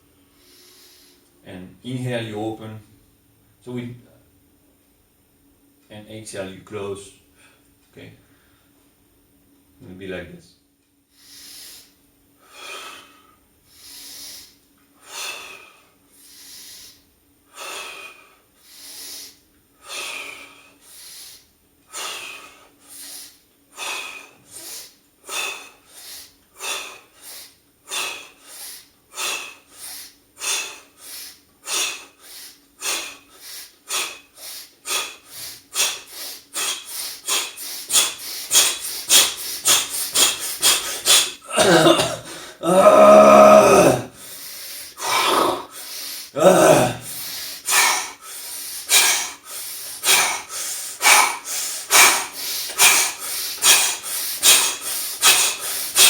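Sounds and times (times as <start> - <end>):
man breathing rhythmically: 0.0 - 1.4, 11.0 - 56.0.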